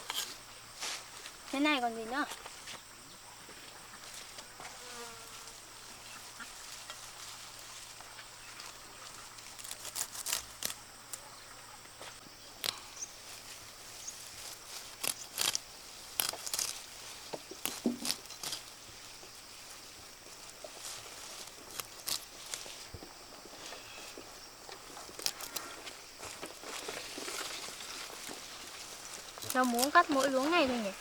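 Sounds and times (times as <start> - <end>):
high insect drone: 0.0 - 31.0
vegetable stems snapping: 9.4 - 11.3, 14.9 - 16.9, 17.5 - 18.7, 21.7 - 22.7, 25.1 - 25.6, 29.4 - 30.5.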